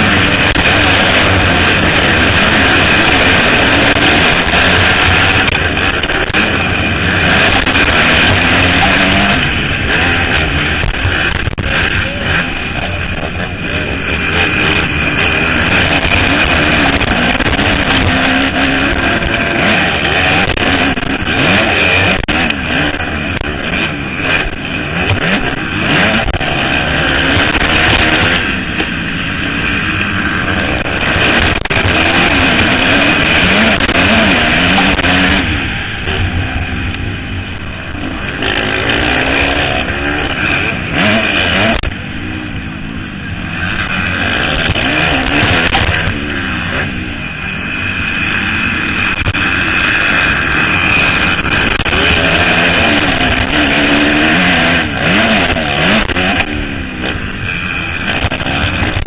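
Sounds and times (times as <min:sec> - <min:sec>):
motocross bikes revving: 0:00.0 - 0:59.0.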